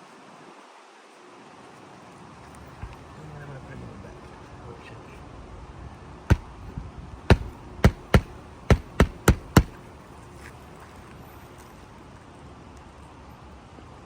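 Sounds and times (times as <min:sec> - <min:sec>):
hammer striking nail: 0:06.3 - 0:06.6, 0:07.3 - 0:09.8.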